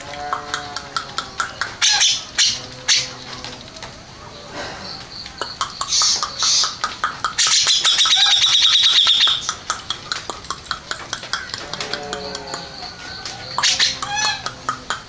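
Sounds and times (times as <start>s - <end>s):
bulbul singing: 0.0s - 15.0s.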